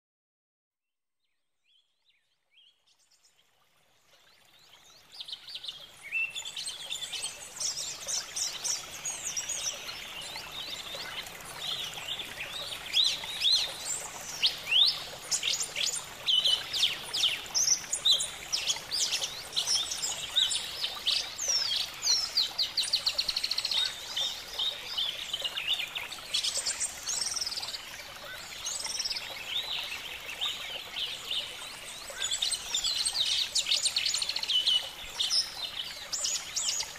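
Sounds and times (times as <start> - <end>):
birds chirping and trilling: 4.6 - 36.9.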